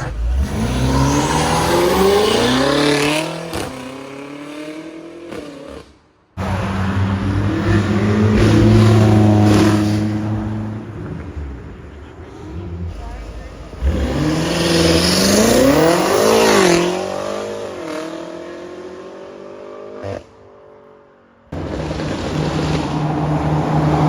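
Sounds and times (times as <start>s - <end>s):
car engine accelerating: 0.0s - 5.8s, 6.4s - 20.3s, 21.5s - 24.0s
car passing loudly: 6.4s - 20.3s, 21.5s - 24.0s.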